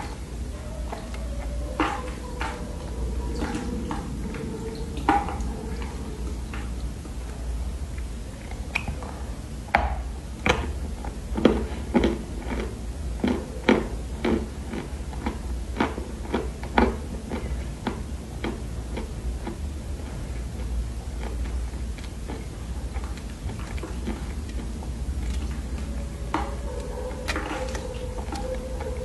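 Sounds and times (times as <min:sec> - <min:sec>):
low hum: 0:00.0 - 0:29.0
chewing clay crunches: 0:10.4 - 0:29.0.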